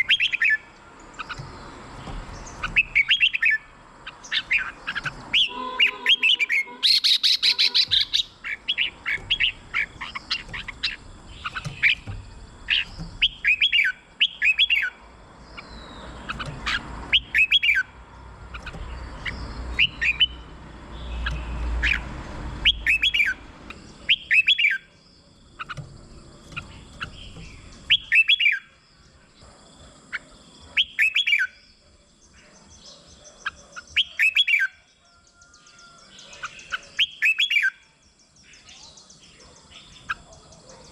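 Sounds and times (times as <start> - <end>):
bulbul warbling song: 0.0 - 28.7.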